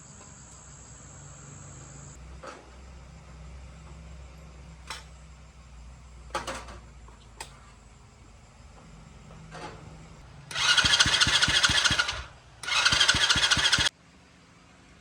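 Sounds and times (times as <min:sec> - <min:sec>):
motorbike starter cranking engine: 0:10.4 - 0:13.9.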